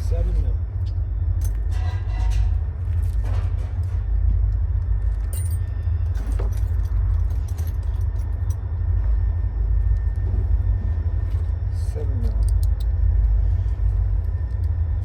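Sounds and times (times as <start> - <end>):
steady low rumble: 0.0 - 15.0
metal clicks and rattles: 12.2 - 13.0.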